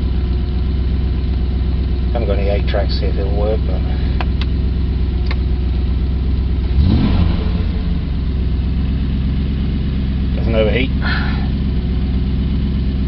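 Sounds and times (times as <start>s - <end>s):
car engine idling: 0.0s - 13.0s
engine revving: 6.4s - 13.0s.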